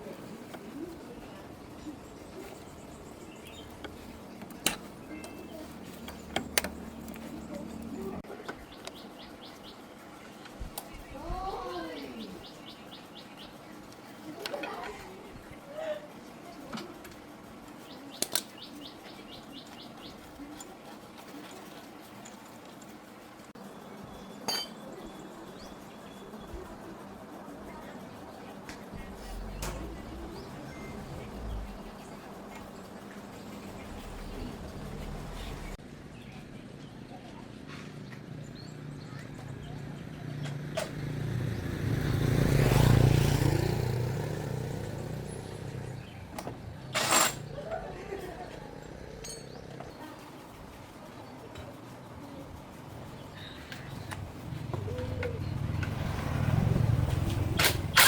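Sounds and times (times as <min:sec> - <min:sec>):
vehicle engine passing by: 0:28.9 - 0:35.8, 0:39.6 - 0:49.7, 0:53.1 - 0:58.0.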